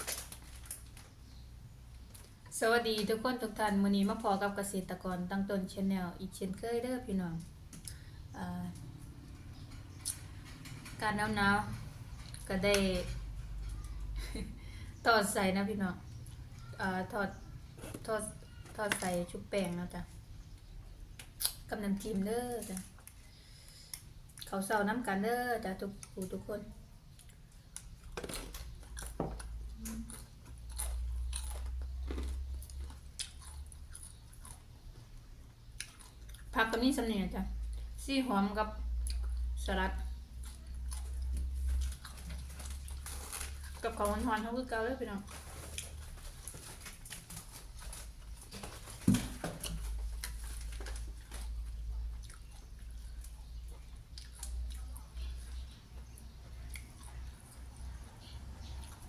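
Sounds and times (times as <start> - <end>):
chewing crisp fried food: 27.0 - 36.9, 38.9 - 48.8, 49.6 - 59.0.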